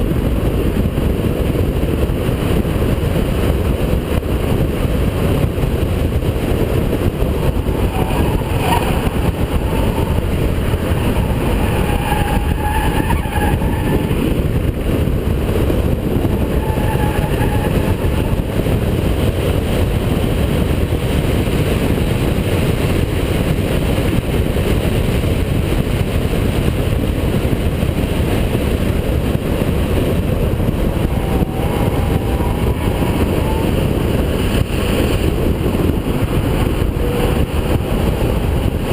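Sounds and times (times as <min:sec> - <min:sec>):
race car engine driven hard: 0:00.0 - 0:38.9
road noise: 0:00.0 - 0:38.9
wavering higher-pitched tones: 0:07.4 - 0:14.2, 0:30.8 - 0:34.0.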